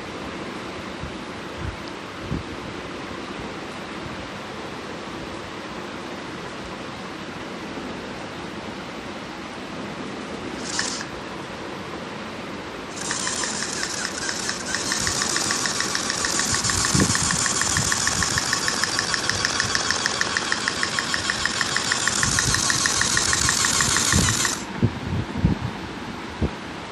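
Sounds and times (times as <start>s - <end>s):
small engine ticking: 10.6s - 11.1s, 12.9s - 24.7s.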